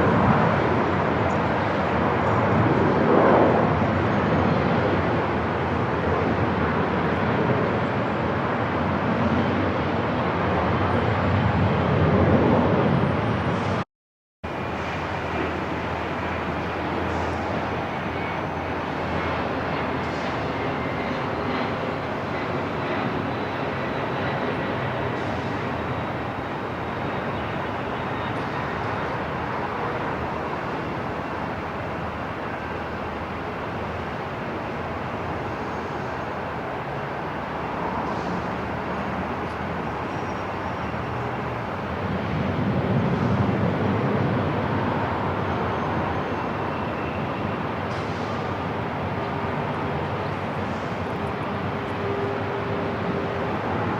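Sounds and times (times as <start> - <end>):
airport ambience: 14.5 - 53.9.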